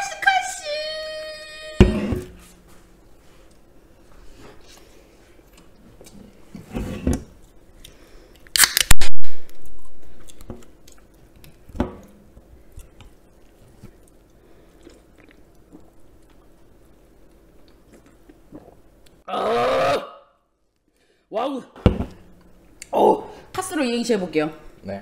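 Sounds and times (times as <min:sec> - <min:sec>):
beer can cracked open with hiss: 0:08.5 - 0:09.6.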